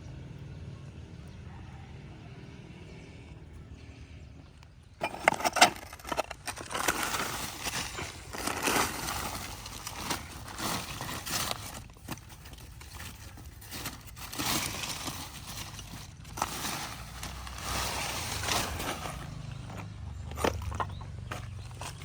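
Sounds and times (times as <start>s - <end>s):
scraping hard cement: 5.0s - 22.0s.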